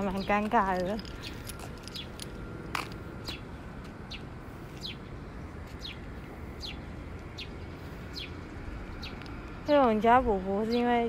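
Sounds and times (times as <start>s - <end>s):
low outdoor hum: 0.0s - 11.0s
bird chirping: 5.7s - 6.0s, 6.6s - 9.2s.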